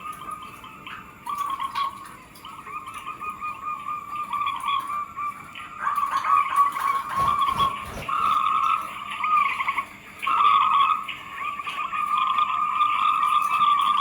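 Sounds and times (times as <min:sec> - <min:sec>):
doves cooing: 0:06.8 - 0:08.6.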